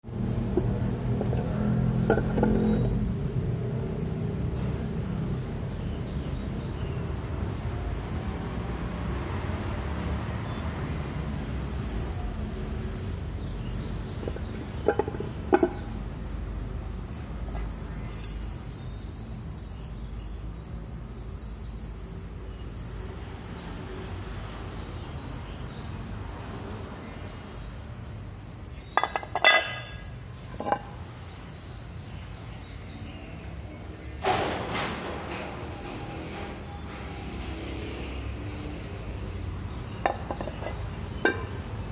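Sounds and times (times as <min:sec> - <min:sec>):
birds chirping: 0:00.0 - 0:08.4, 0:10.4 - 0:34.3, 0:35.3 - 0:41.9
sharp knocks and clinks: 0:00.4 - 0:03.1, 0:14.2 - 0:16.0, 0:28.8 - 0:31.2, 0:39.7 - 0:41.9.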